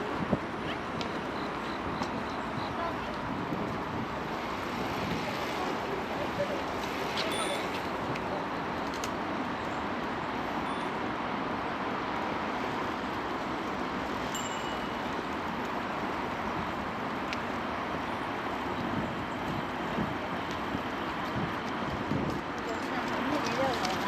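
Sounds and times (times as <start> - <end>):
distant city traffic hum: 0.0 - 24.0
faint short high tones: 7.3 - 7.8.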